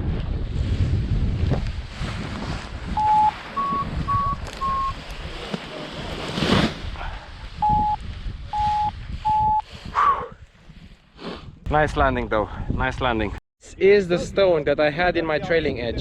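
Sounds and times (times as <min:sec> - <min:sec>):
wind on microphone: 0:00.0 - 0:05.5, 0:06.1 - 0:13.4, 0:15.0 - 0:16.0
variometer beeping: 0:03.0 - 0:05.0, 0:07.6 - 0:09.6.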